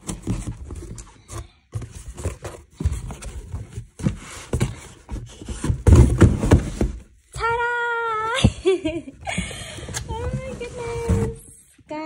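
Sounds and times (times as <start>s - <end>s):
cardboard rustling and scraping: 0.0s - 7.3s, 9.8s - 11.6s
heavy bumps of boxed item: 1.8s - 7.2s.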